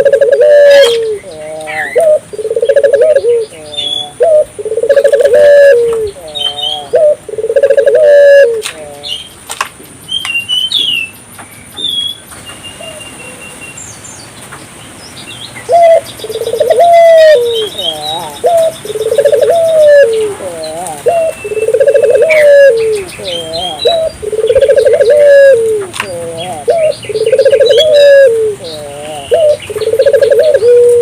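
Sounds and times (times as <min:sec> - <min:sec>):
dove cooing: 0:00.0 - 0:09.1, 0:15.7 - 0:31.0
small birds chirping faintly: 0:00.0 - 0:31.0.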